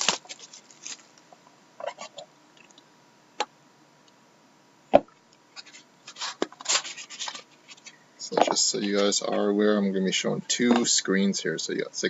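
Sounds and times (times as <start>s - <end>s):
card packs rustling and scraping: 0.0s - 1.2s, 5.6s - 9.5s.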